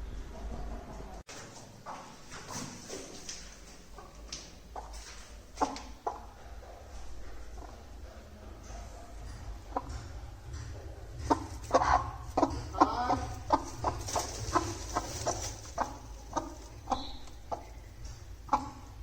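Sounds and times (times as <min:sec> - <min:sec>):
hen clucking: 0:03.9 - 0:19.0.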